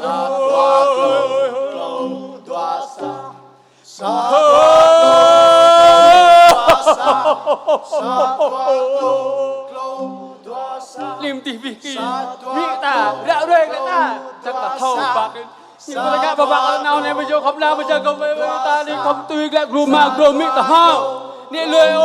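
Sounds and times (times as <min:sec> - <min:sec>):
man singing: 0:00.0 - 0:03.2, 0:04.0 - 0:22.0
bamboo xylophone ensemble: 0:00.0 - 0:05.4.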